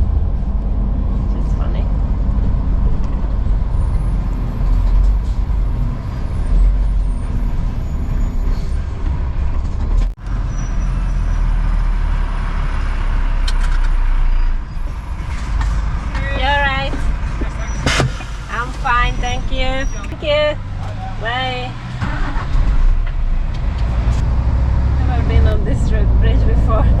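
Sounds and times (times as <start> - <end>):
road rumble: 0.0 - 27.0
lorry engine: 14.8 - 27.0.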